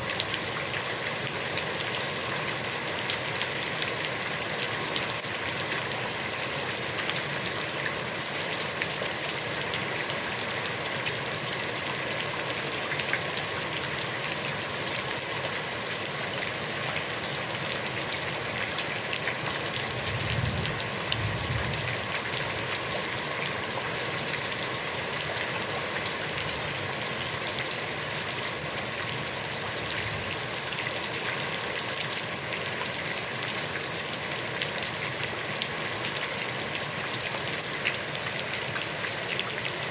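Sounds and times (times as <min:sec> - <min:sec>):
heavy rain falling on a pond: 0:00.0 - 0:39.9
low rumble: 0:19.9 - 0:22.1.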